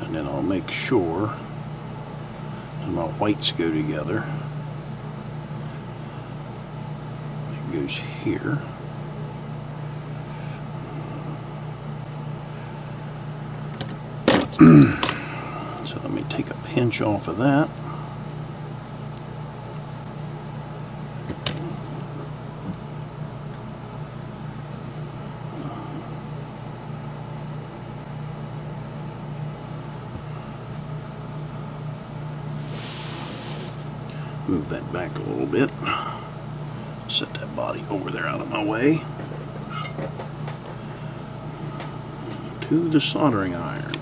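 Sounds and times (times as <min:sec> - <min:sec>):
steady low hum: 0:00.0 - 0:44.0
faint hiss: 0:32.6 - 0:33.8.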